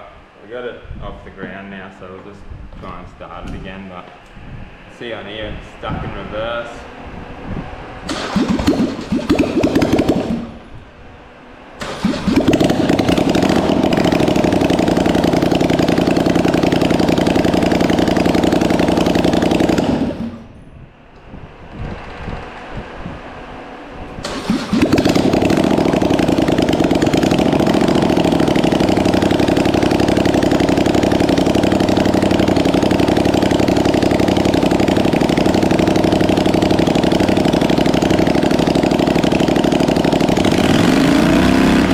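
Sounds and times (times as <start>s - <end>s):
quad engine cranking and running: 8.0s - 10.8s, 11.8s - 20.6s, 24.2s - 41.9s.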